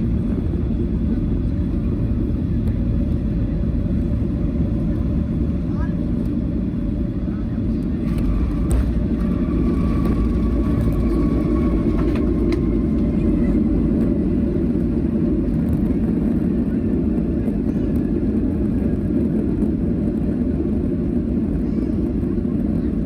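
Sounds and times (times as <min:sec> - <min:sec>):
faint whine: 0:00.0 - 0:23.0
vehicle rumble in motion: 0:00.0 - 0:23.0.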